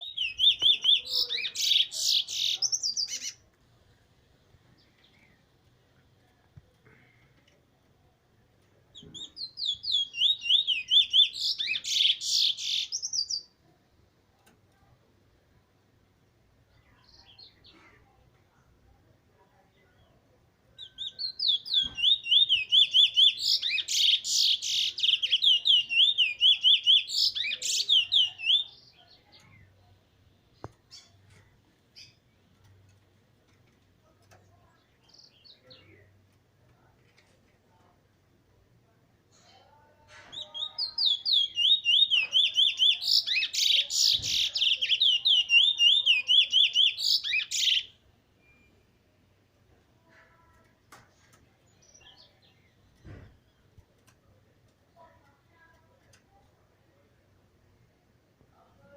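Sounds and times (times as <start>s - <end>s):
bird chattering: 0.0s - 3.4s, 9.2s - 13.3s
songbird singing whistled notes: 0.0s - 3.4s, 8.9s - 13.6s, 20.8s - 29.9s, 40.3s - 49.0s
bullfinch whistled song: 41.0s - 48.7s.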